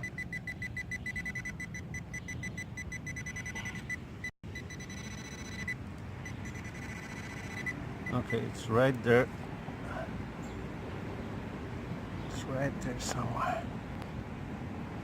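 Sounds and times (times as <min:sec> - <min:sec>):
metal detector probe beeping: 0:00.0 - 0:08.5.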